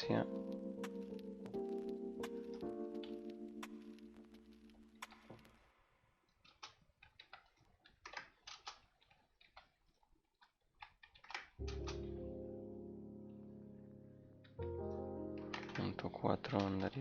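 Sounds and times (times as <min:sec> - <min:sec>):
background music chord: 0:00.0 - 0:05.4, 0:11.6 - 0:17.0.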